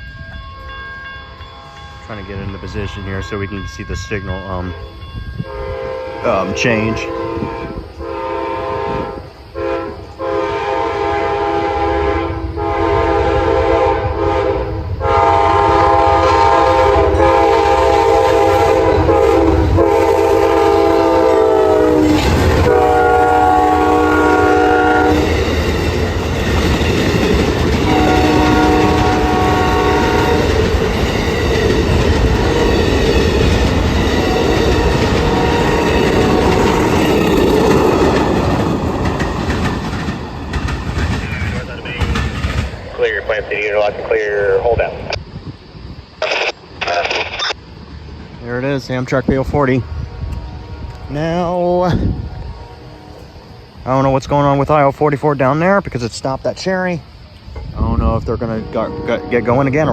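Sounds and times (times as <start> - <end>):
train rumbling and clacking: 0.0 - 46.3, 47.5 - 59.9
train horn blasts: 5.3 - 25.3, 27.8 - 30.7, 34.3 - 37.0, 50.0 - 51.3, 52.0 - 53.7, 58.5 - 59.9.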